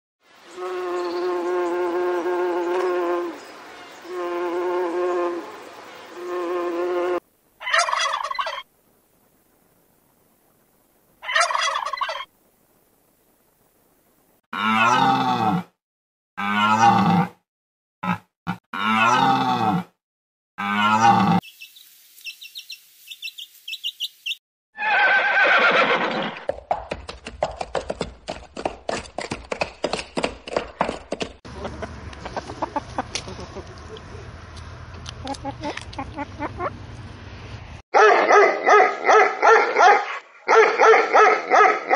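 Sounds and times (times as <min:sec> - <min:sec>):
animal cries: 0:20.6 - 0:21.4.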